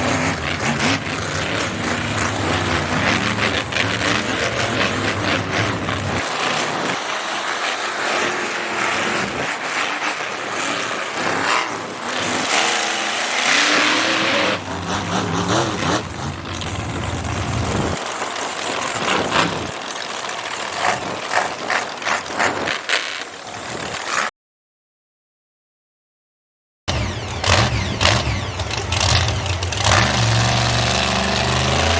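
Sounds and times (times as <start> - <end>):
truck engine revving: 0.0 - 22.0, 26.9 - 31.9
loud continuous noise: 0.0 - 24.1.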